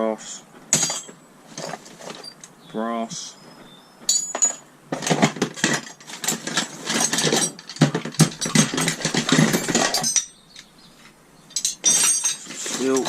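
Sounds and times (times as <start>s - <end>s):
metal scrap clattering in a box: 0.7s - 2.3s, 4.1s - 10.4s, 11.6s - 13.0s.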